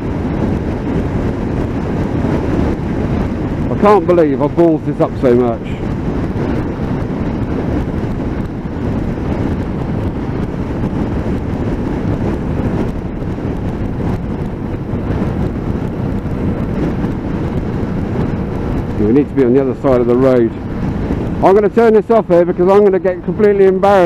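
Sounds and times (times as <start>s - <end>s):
motorcycle road noise: 0.0s - 24.0s
wind rush in helmet: 0.0s - 24.0s.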